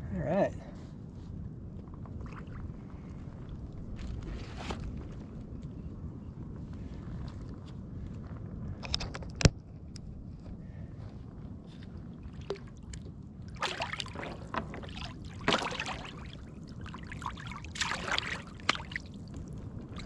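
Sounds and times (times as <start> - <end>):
wind and sea rumble: 0.0 - 20.0
water splashing and trickling: 12.2 - 20.0.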